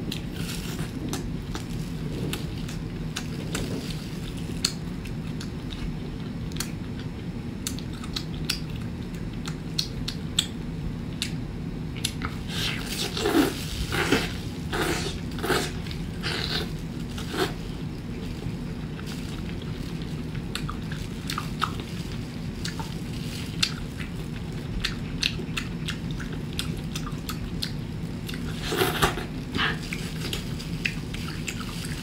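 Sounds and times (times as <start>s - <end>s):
wet chewing of rubbery food: 0.0s - 32.0s.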